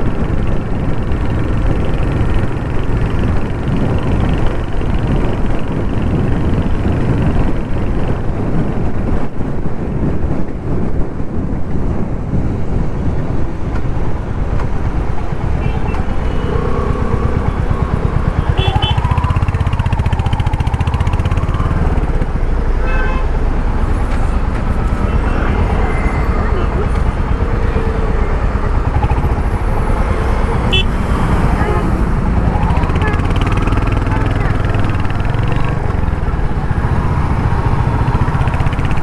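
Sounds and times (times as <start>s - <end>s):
motorcycle engine running: 0.0s - 9.2s, 12.7s - 39.0s
vehicle horns: 15.4s - 21.5s, 22.7s - 36.8s.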